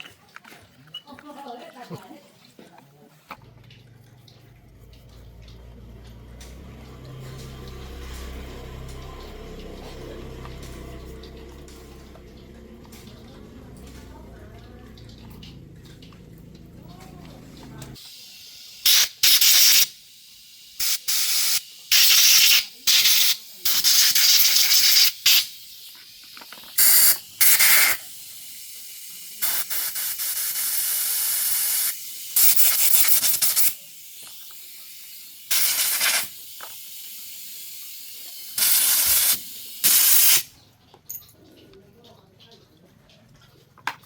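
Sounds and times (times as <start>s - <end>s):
pressurised spray hissing: 17.9s - 40.5s.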